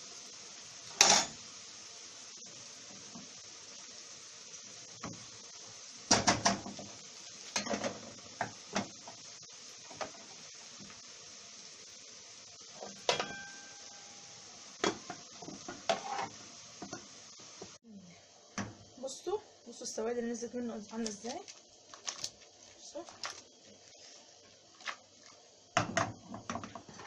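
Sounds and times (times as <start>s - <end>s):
faint hiss: 0.0s - 27.0s
ringing metallic clang: 13.1s - 14.3s.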